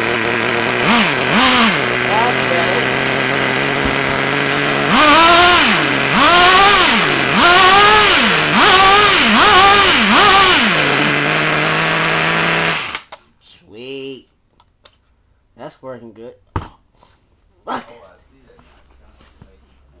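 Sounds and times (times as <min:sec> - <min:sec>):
small nitro engine revving: 0:00.0 - 0:13.1.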